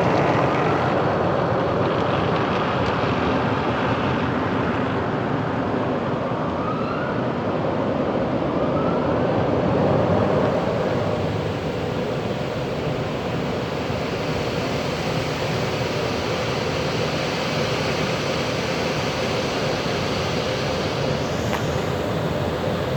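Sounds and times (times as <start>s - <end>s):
car wash spraying water: 0.0s - 5.3s, 9.7s - 22.9s
faint rising whines: 8.5s - 22.9s.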